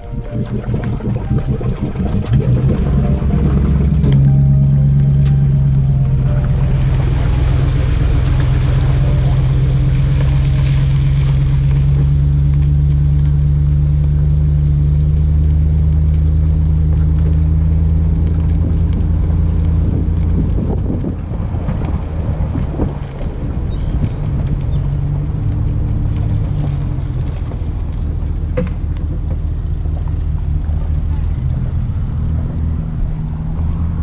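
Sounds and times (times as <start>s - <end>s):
boat motor running: 0.0s - 34.0s
wind buffeting microphone: 15.6s - 34.0s.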